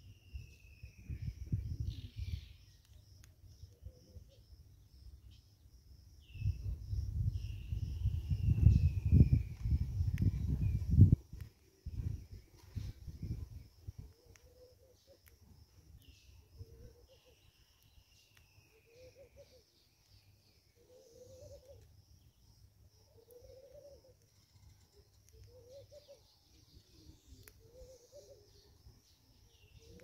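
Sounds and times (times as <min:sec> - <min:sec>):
low bird call: 0:16.0 - 0:21.9, 0:23.1 - 0:28.8.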